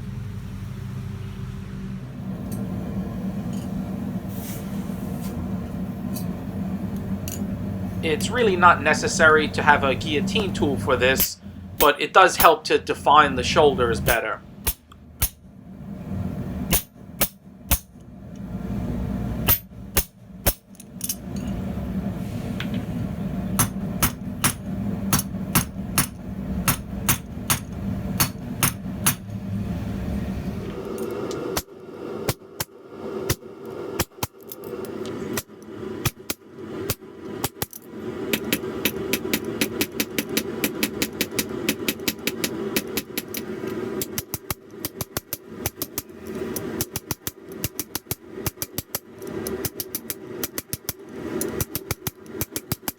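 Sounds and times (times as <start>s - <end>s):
steady drone: 5.3s - 44.0s
hammer striking steel on anvil: 11.2s - 12.6s, 14.1s - 15.4s, 16.7s - 17.9s, 19.5s - 20.7s, 23.6s - 29.3s.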